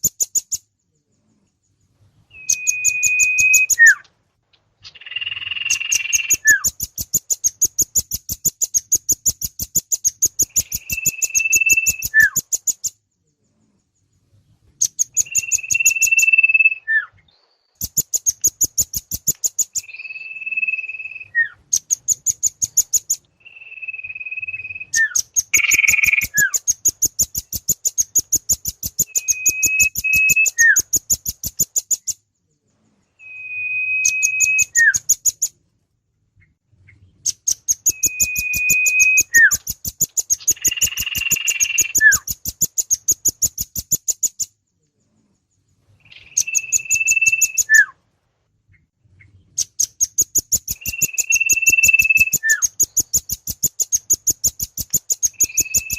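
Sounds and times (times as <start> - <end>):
rapid high chipping bird trills: 0.0 - 4.0, 4.8 - 14.2, 14.8 - 16.9, 17.7 - 35.6, 37.3 - 47.9, 49.6 - 55.9
bird whistle with falling note: 10.6 - 12.4, 33.2 - 35.0, 37.9 - 39.6, 46.3 - 47.9, 50.8 - 52.7.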